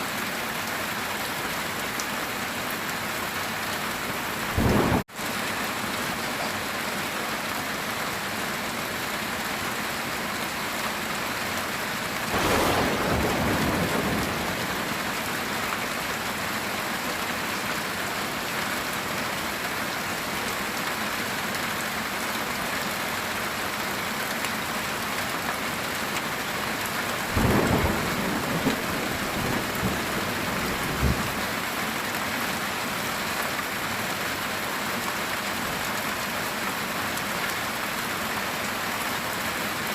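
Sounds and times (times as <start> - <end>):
heavy rain on a tin roof: 0.0 - 39.9
thunder rolling and cracking: 4.6 - 5.0, 12.3 - 15.4, 27.4 - 31.4.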